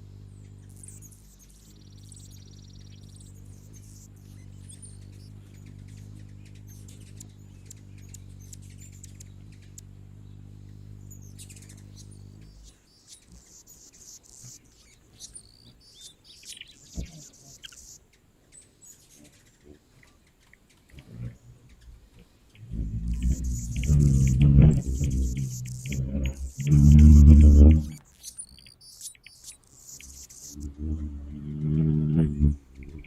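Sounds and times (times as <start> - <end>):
steady low hum: 0.0 - 15.4, 20.9 - 28.0, 29.7 - 33.0
hummingbirds chirping: 0.0 - 33.0.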